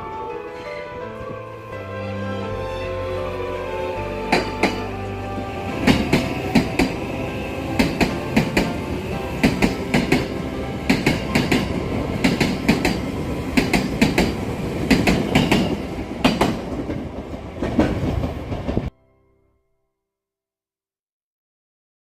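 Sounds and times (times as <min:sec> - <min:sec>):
electric train running: 0:01.6 - 0:18.9
train wheels clacking over rail joints: 0:09.4 - 0:18.9.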